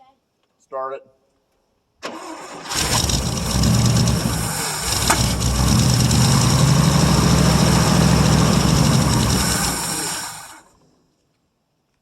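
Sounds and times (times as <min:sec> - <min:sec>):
pickup engine running unevenly: 0:02.7 - 0:10.8
engine pop: 0:02.8 - 0:10.9.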